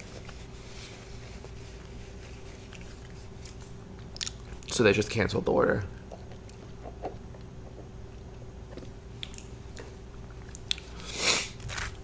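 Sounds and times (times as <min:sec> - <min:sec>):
low steady hum: 0:00.0 - 0:12.0
person chewing food: 0:02.7 - 0:04.7, 0:08.7 - 0:12.0.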